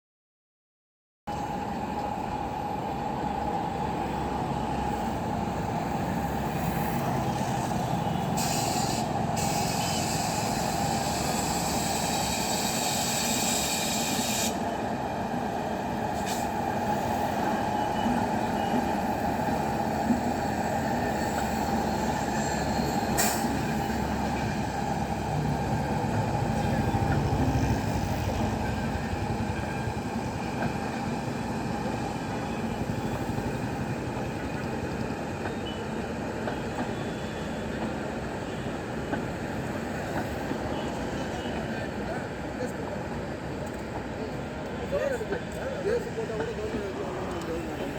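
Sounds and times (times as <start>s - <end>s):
train rumbling on rails: 1.3s - 47.9s
hiss: 8.4s - 14.7s, 16.2s - 16.6s, 23.1s - 23.6s.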